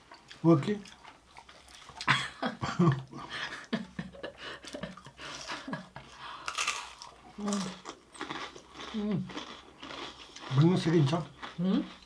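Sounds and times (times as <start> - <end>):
food crunching: 6.4 - 12.0.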